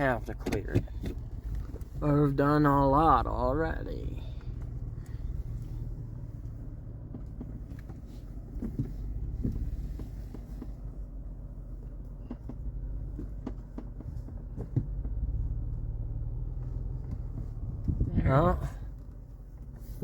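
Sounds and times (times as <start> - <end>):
vehicle engine rumbling: 0.0 - 20.0
sharp knocks and clicks: 0.2 - 2.0, 7.0 - 10.9, 11.8 - 15.4.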